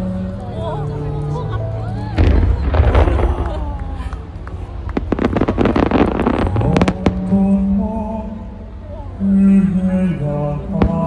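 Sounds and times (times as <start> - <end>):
music: 0.0 - 11.0
fireworks bangs and crackling: 2.2 - 7.7, 10.8 - 11.0.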